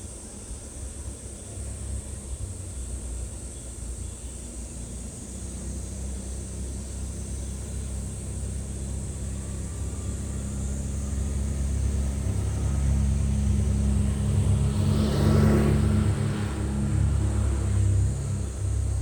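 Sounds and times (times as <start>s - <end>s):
vehicle passing close: 9.4s - 19.0s.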